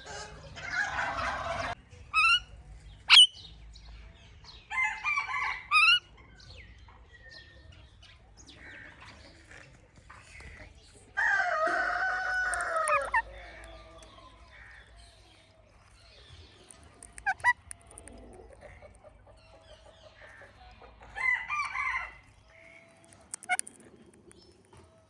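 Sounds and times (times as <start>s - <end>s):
parrot calling: 2.1s - 2.5s, 11.7s - 13.7s, 17.0s - 18.8s, 23.3s - 23.8s.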